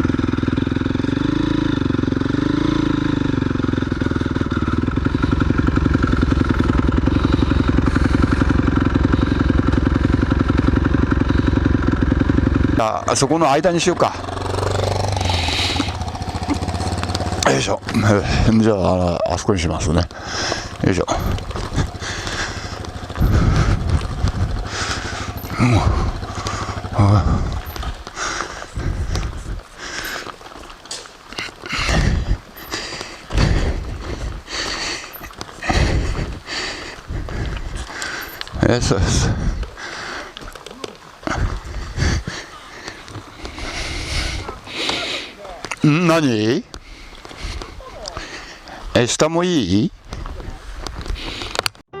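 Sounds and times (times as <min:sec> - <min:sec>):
motorcycle engine low rumble: 0:00.0 - 0:52.0
dirt bike engine putter: 0:19.8 - 0:36.4, 0:37.4 - 0:42.0.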